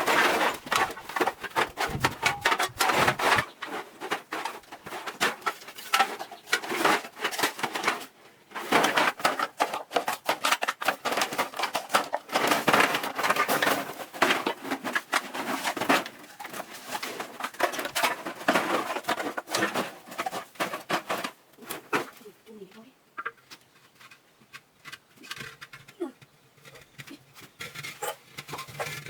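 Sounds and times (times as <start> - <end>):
hard objects clicking and clattering: 0.0 - 22.2.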